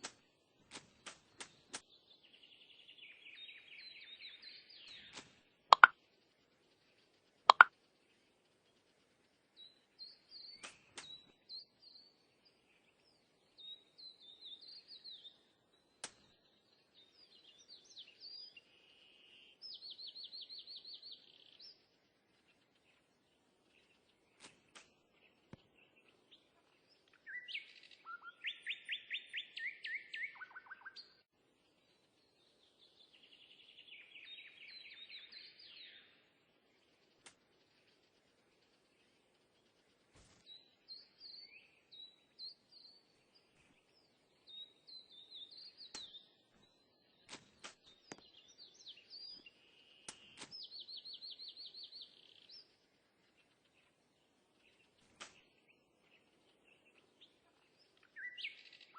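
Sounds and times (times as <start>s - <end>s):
birds chirping: 0.0s - 58.9s
sharp click: 5.1s - 5.9s, 7.5s - 7.7s.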